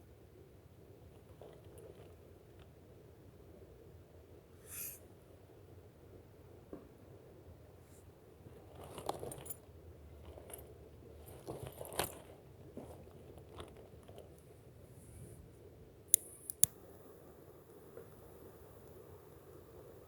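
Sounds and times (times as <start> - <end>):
sharp clicks: 16.2 - 16.8.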